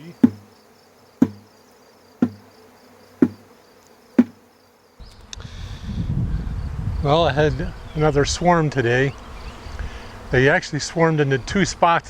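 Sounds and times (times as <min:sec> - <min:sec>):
bee swarm buzzing: 0:00.0 - 0:05.0.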